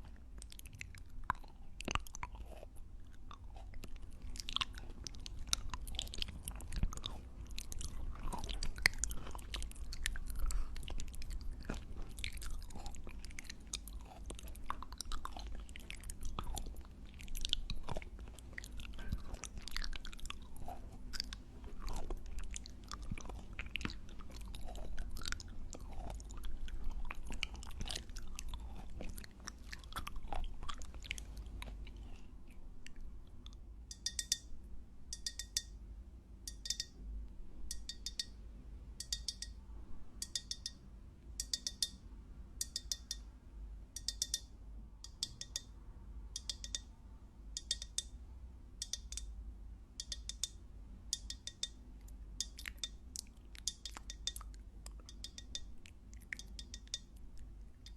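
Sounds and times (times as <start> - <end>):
chewing popping boba: 0.0 - 34.4, 51.2 - 57.9
short high ringing ticks: 33.9 - 34.5, 36.5 - 37.0, 44.0 - 44.5.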